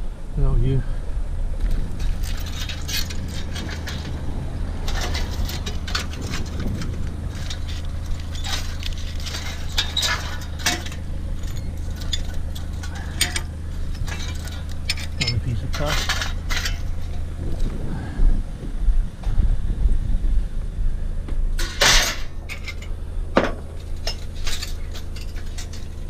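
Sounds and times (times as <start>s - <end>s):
steady low hum: 0.0s - 26.0s
scrap metal clinking: 1.7s - 17.4s, 21.6s - 26.0s.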